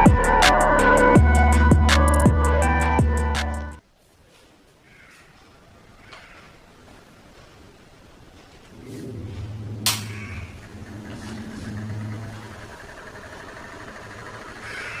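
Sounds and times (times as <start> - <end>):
small motor humming: 9.6 - 15.0.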